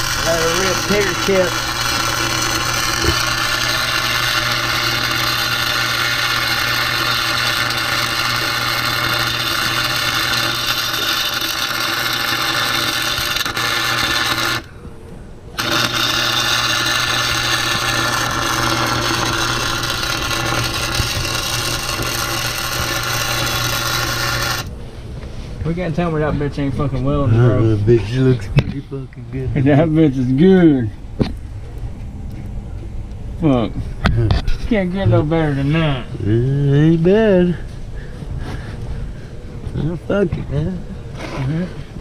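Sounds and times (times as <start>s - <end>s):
crackling welding arc: 0.0s - 14.7s, 15.6s - 24.7s
electrical hum: 0.0s - 42.0s.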